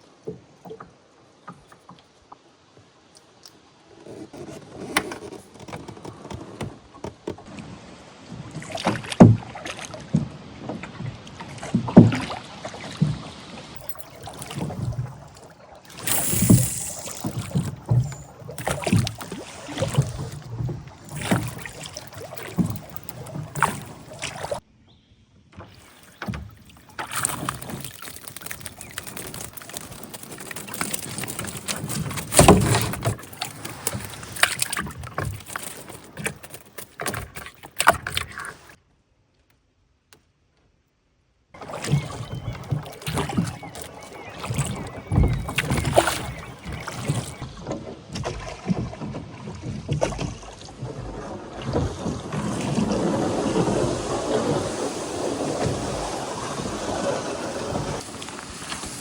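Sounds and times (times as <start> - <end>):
water lapping around boat: 0.0 - 24.6, 25.5 - 38.8, 41.6 - 59.0
knocks in a boat: 4.9 - 7.5, 41.9 - 53.8.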